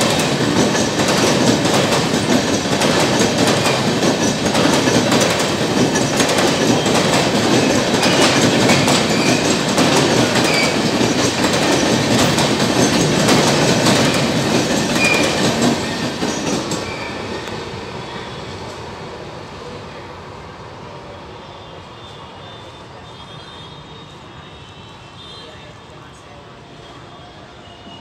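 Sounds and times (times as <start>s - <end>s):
train wheels clattering: 0.0s - 17.6s
wheel squeals: 7.6s - 9.6s, 16.4s - 17.4s.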